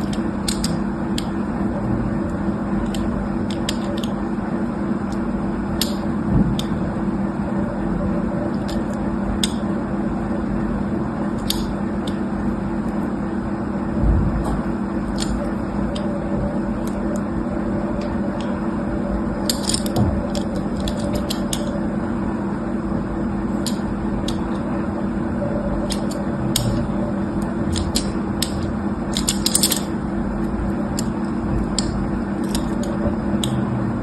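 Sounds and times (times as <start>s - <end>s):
low hum: 0.0s - 34.0s
small objects clicking and rattling: 19.5s - 21.6s, 29.2s - 29.9s.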